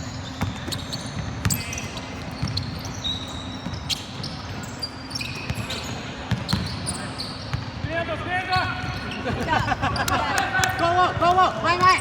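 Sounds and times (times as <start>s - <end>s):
shoe squeaks: 0.0s - 7.8s, 8.4s - 10.2s.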